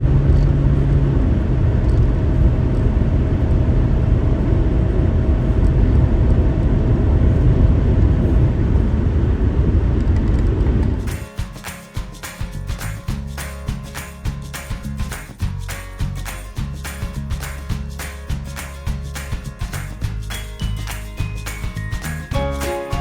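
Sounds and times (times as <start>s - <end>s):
vehicle rumble: 0.0s - 11.2s.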